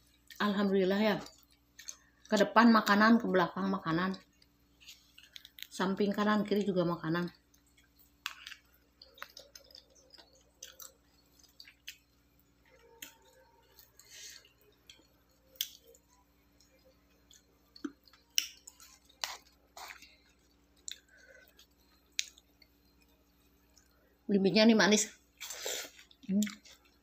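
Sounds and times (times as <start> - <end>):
faint steady hum: 0.0 - 27.0
chewing crisp fruit: 1.2 - 2.4, 4.1 - 5.8, 7.4 - 23.9, 25.4 - 27.0.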